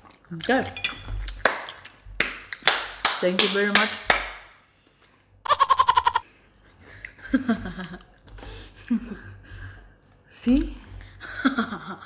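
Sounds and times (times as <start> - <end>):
high-pitched giggle: 5.5 - 6.2.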